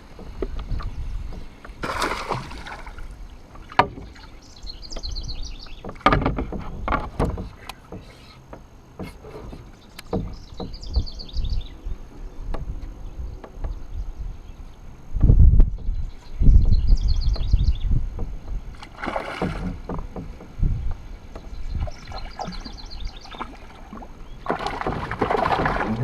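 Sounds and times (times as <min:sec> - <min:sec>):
water lapping: 0:00.0 - 0:10.8, 0:18.7 - 0:26.0
rushing water splash: 0:01.8 - 0:03.2, 0:18.9 - 0:19.9, 0:21.9 - 0:26.0
knocks against kayak hull: 0:03.6 - 0:04.2, 0:05.8 - 0:11.4, 0:16.6 - 0:22.8, 0:23.4 - 0:26.0.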